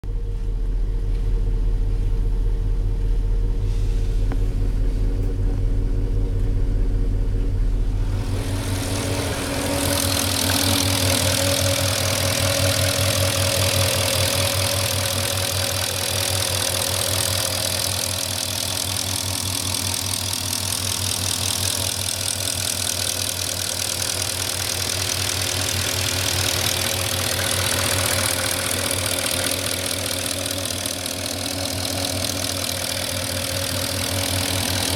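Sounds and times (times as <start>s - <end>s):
car engine idling: 0.0s - 34.9s
fast engine ticking: 8.0s - 34.9s.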